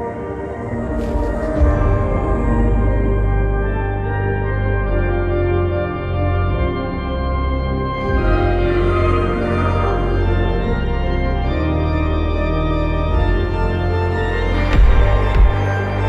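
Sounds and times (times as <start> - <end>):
low bass drone: 0.7 - 16.0.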